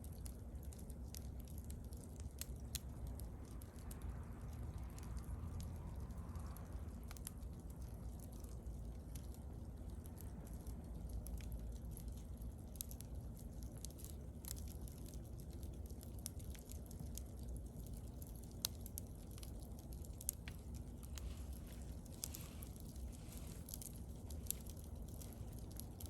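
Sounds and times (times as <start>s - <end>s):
bonfire crackling: 0.0s - 26.0s
fire pops and snaps: 0.0s - 26.0s
low steady rumble: 0.0s - 26.0s.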